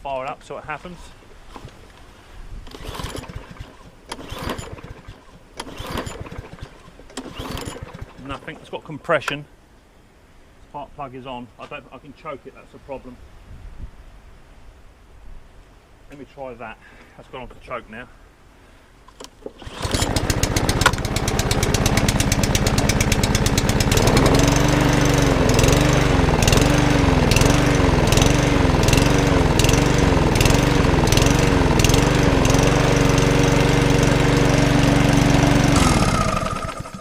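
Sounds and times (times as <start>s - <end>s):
lawnmower engine running: 2.7s - 8.7s, 19.6s - 37.0s.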